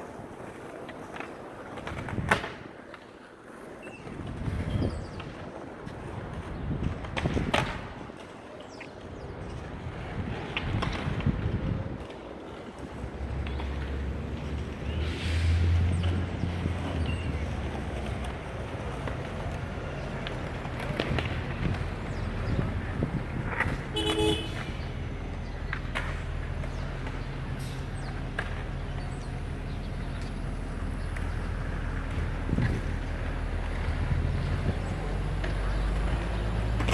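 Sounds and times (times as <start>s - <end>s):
city street noise: 0.0s - 36.9s
wind buffeting microphone: 1.8s - 2.6s, 4.0s - 8.2s, 9.0s - 36.9s
idling vehicles engine hum: 9.2s - 36.9s.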